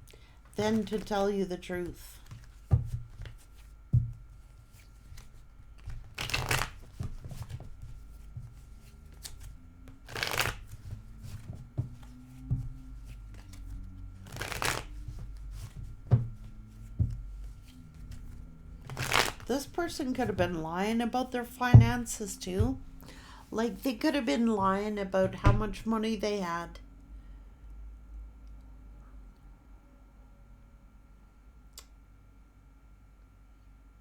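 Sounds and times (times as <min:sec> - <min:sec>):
cards being shuffled: 0:00.6 - 0:01.2, 0:01.8 - 0:20.7.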